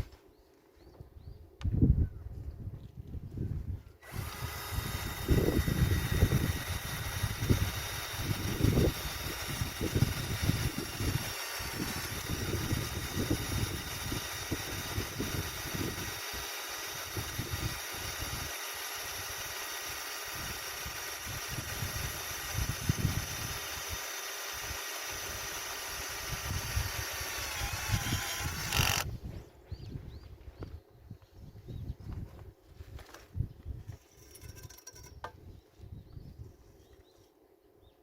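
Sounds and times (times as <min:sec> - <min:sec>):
metalworking power tool whining: 0:04.0 - 0:29.1.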